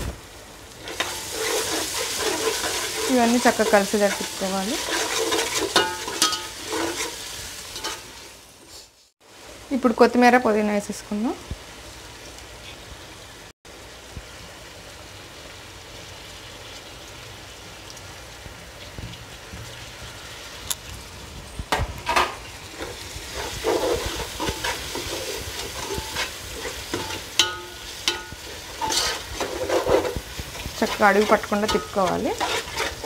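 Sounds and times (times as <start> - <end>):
food sizzling in oil: 0.0 - 33.0
metal spoon scraping a pot: 0.9 - 7.2, 23.3 - 33.0.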